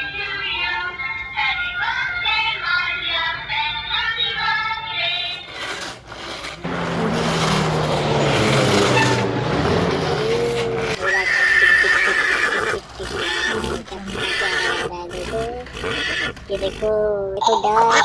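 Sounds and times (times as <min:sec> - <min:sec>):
toy synthesized children's song: 0:16.4 - 0:18.0.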